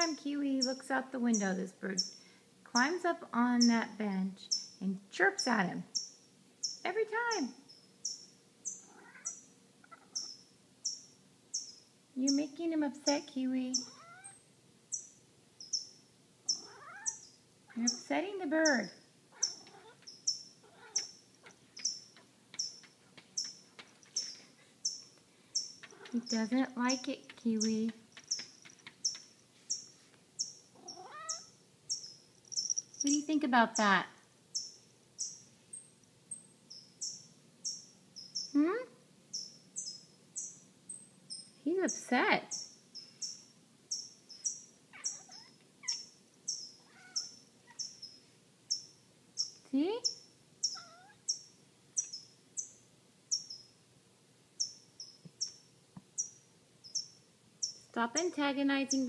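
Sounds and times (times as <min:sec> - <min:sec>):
bird chirping: 0:00.0 - 0:53.8, 0:54.6 - 0:59.0.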